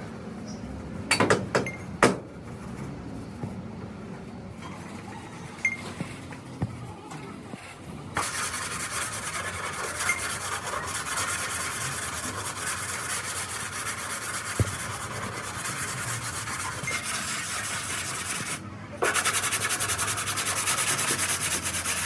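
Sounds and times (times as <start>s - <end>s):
rasping sanding of car bodywork: 8.2s - 22.0s
sharp knock: 14.6s - 15.0s.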